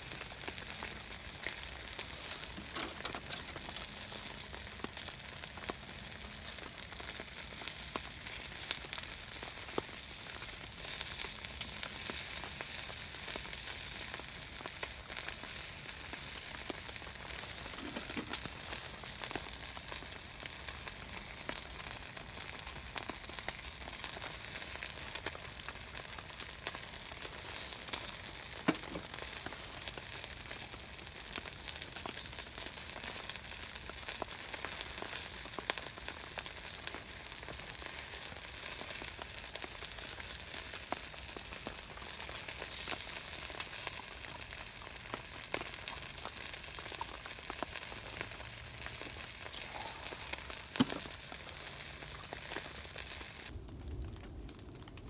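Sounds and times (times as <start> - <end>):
food sizzling on a grill: 0.0 - 53.5
fat popping: 17.6 - 18.6, 28.6 - 29.2, 49.5 - 51.4.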